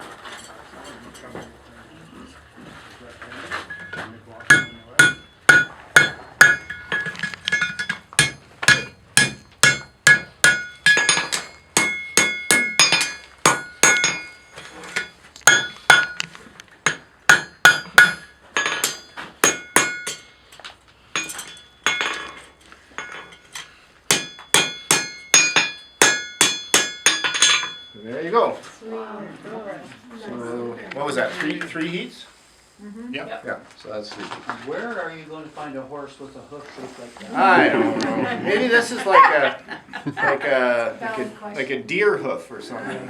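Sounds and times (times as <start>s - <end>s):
hammer striking iron on anvil: 4.5s - 16.2s, 16.8s - 20.4s, 21.2s - 22.4s, 23.0s - 28.0s.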